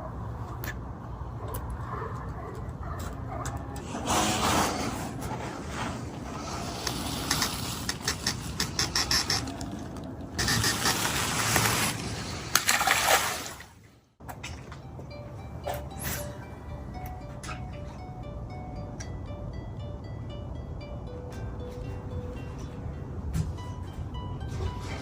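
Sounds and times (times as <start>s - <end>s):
water splashing: 9.0s - 14.0s.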